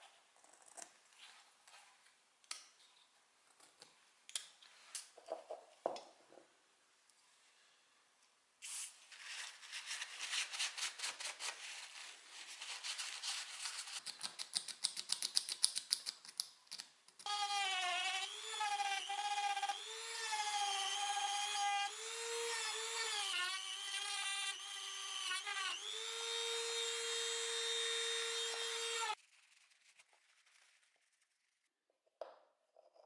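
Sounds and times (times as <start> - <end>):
electric power tool whining: 17.3 - 29.2.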